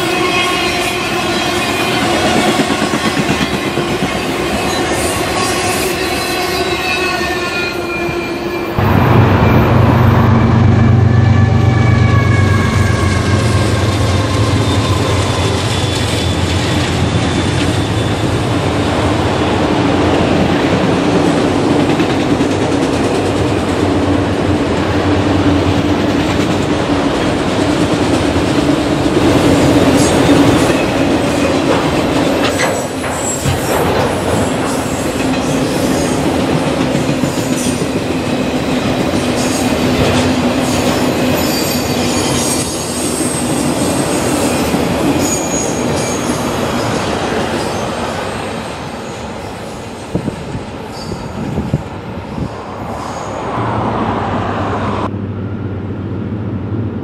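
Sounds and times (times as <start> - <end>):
freight train wheels rumbling: 0.0 - 57.0
high wheel squeals: 4.2 - 8.8, 10.3 - 18.8, 40.6 - 48.0, 50.8 - 51.6.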